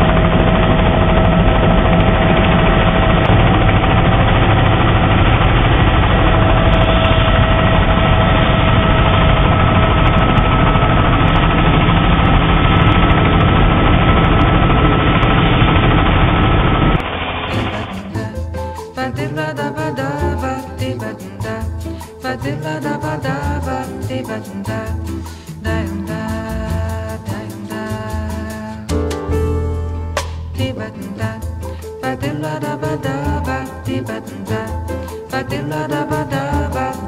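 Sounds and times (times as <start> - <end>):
helicopter turbine and rotor: 0.0 - 18.4.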